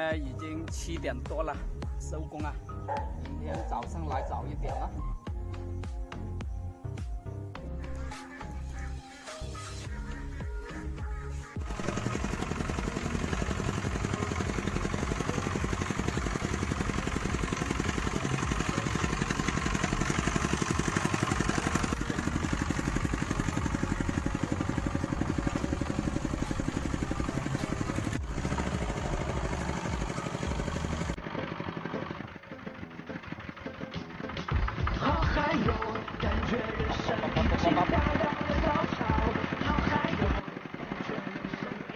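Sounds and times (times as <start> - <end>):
motor engine running: 0.0 - 41.9.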